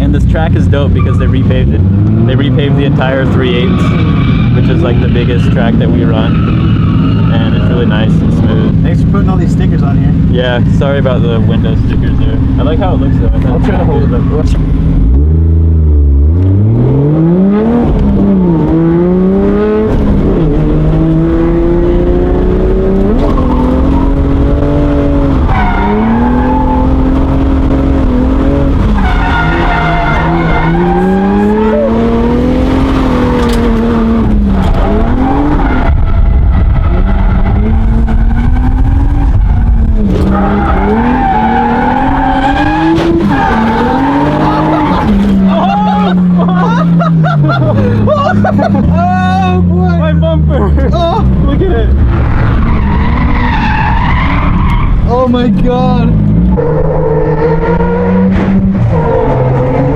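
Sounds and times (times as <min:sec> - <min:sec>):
car engine revving: 0:00.0 - 0:59.9
tyres squealing and skidding: 0:00.7 - 0:09.6, 0:23.1 - 0:59.9.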